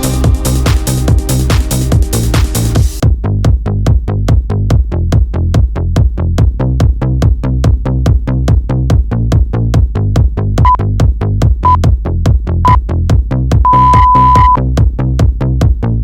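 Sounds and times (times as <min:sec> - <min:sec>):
electronic dance music: 0:00.0 - 0:03.0
interval timer beeps: 0:13.7 - 0:14.6.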